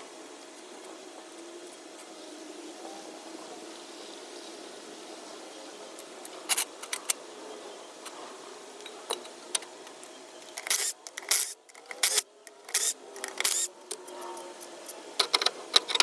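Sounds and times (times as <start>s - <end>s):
metal parts clinking and scraping: 6.2s - 7.2s, 8.8s - 14.4s, 15.2s - 16.0s
sharp clicks: 10.4s - 14.0s.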